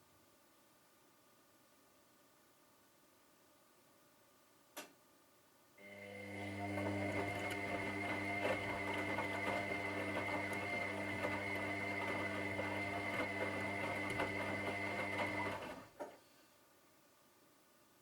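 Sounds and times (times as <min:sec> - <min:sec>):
washing machine motor humming: 0:05.8 - 0:15.9.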